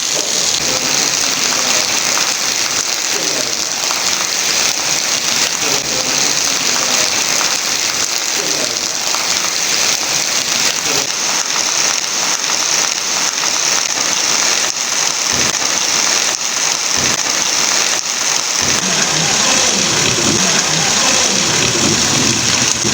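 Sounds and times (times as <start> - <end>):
heavy rain falling: 0.0 - 22.9
low rumble: 18.6 - 22.9.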